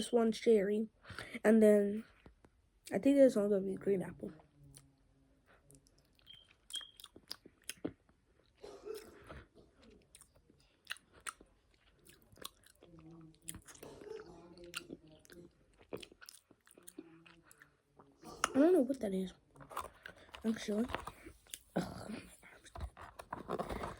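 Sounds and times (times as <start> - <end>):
chewing gummy candy: 5.5 - 23.9.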